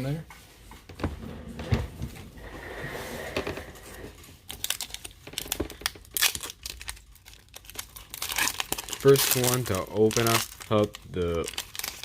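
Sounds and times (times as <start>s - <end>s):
foil wrappers crinkling: 4.4s - 12.0s.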